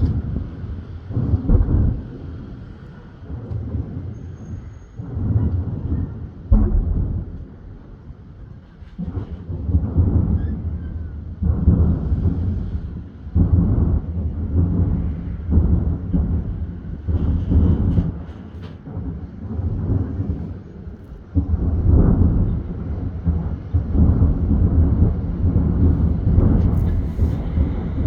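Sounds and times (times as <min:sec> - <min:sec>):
firework shells booming: 0:06.4 - 0:08.2, 0:25.8 - 0:28.0.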